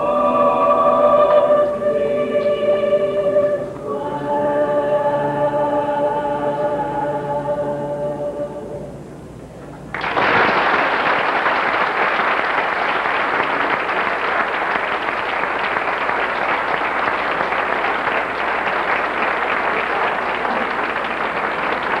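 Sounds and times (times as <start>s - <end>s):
a cappella singing: 0.0s - 9.0s
audience applause: 9.9s - 22.0s.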